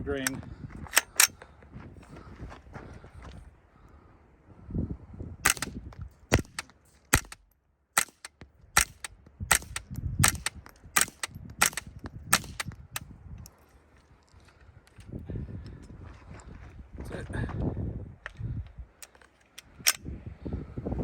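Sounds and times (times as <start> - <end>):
low wind rumble on microphone: 0.0 - 7.3, 8.6 - 19.0, 19.6 - 21.0
rifle bolt cycling: 0.2 - 1.3, 5.5 - 12.8, 19.0 - 20.0
quiet suppressed rifle shots: 5.4 - 12.8.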